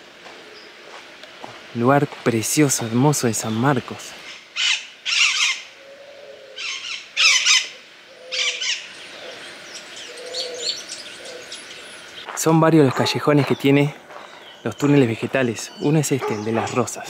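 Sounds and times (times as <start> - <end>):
birds chirping fast: 3.4 - 17.0
soft low bird calls: 4.2 - 17.0.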